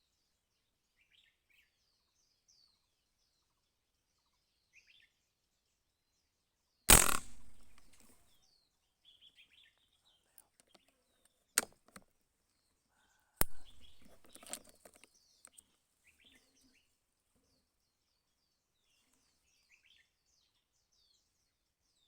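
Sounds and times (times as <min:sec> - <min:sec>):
gunshots with echo: 0:06.9 - 0:08.0, 0:13.4 - 0:14.2
faint sharp crack: 0:06.9 - 0:08.2, 0:13.4 - 0:14.3
small birds chirping: 0:06.9 - 0:22.0.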